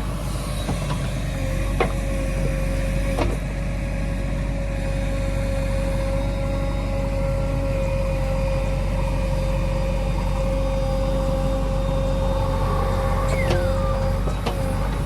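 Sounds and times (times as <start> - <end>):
heavy diesel engine humming: 0.0 - 15.0
short falling squeal: 12.5 - 14.2.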